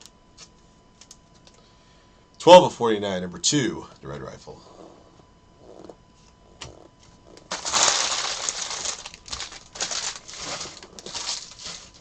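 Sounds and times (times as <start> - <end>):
card packaging crinkling: 7.4 - 12.0.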